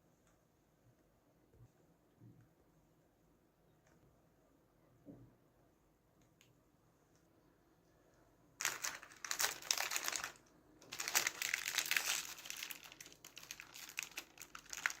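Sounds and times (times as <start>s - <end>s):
crinkling crackling noise: 8.6s - 15.0s.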